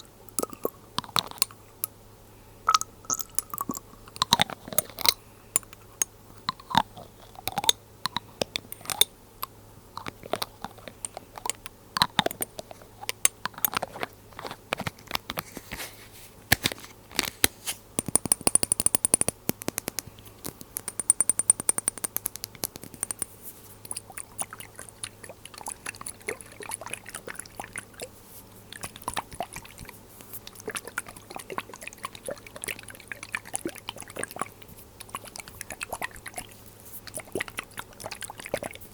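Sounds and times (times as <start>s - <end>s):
rapid crackly clicking: 18.1s - 24.6s
glass bottles clicking and tapping: 20.8s - 22.3s.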